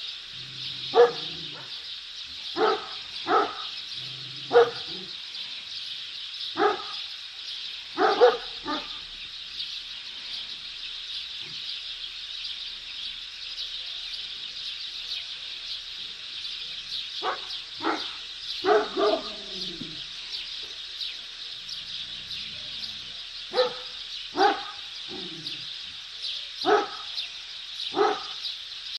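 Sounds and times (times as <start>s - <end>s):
high chirping: 0.0s - 28.9s
dogs barking: 0.6s - 1.8s, 2.5s - 5.2s, 6.5s - 7.1s, 7.9s - 9.1s, 17.2s - 20.1s, 23.4s - 25.7s, 26.6s - 27.2s, 27.9s - 28.4s.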